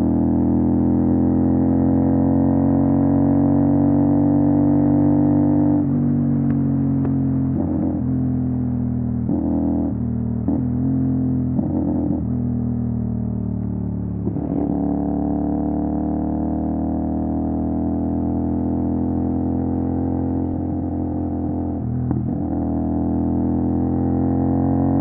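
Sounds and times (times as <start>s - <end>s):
motorcycle engine rising: 14.1s - 16.5s.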